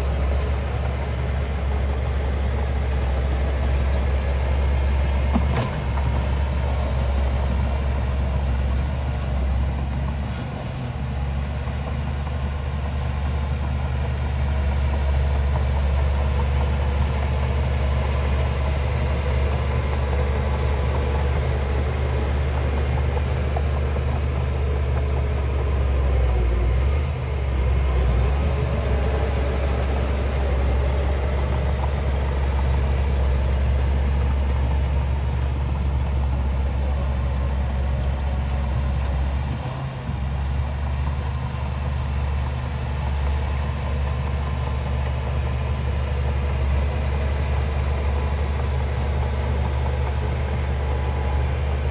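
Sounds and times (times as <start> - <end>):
heavy diesel engine droning: 0.0 - 51.9.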